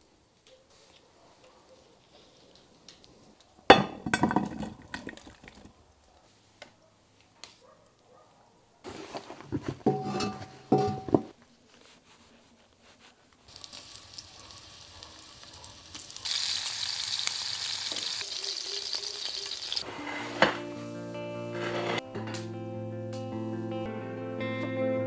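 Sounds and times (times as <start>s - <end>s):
cast iron skillet clanking: 3.7s - 5.6s, 9.8s - 11.3s
oil sizzling in a skillet: 13.5s - 19.8s.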